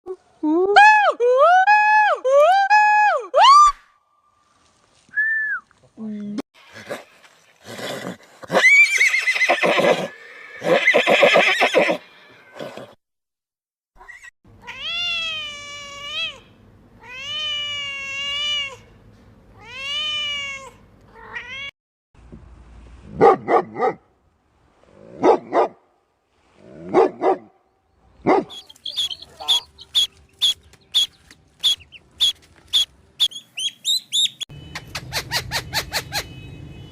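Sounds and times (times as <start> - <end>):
short barks: 28.2 - 29.7
rising and falling animal calls: 28.5 - 34.4
rough animal calls: 28.5 - 34.4.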